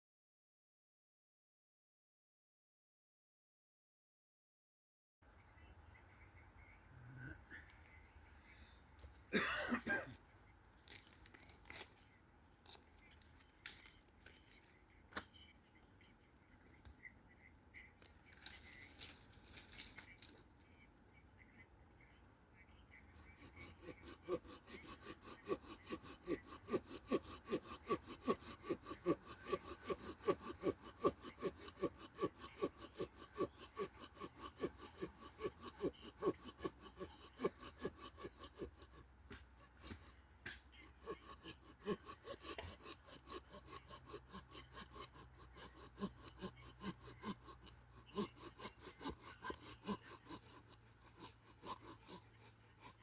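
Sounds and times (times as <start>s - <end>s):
hand saw cutting wood: 23.2s - 53.0s.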